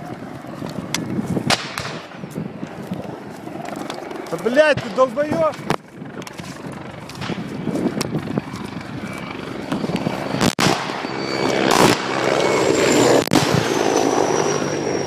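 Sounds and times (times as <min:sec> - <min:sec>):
helicopter engine and rotor drone: 0:00.0 - 0:15.0
thin turbine whine: 0:00.0 - 0:15.0.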